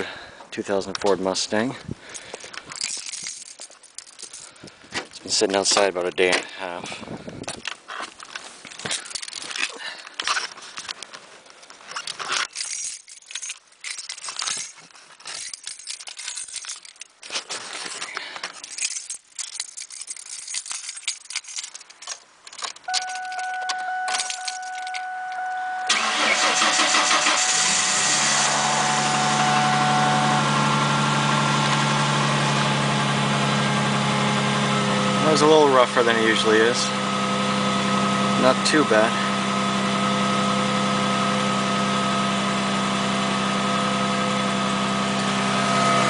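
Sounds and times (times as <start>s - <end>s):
keys jangling and clicking: 2.1s - 4.8s, 7.4s - 11.0s, 11.6s - 25.5s
steady whine: 22.8s - 46.0s
car engine starting and idling: 22.9s - 46.0s.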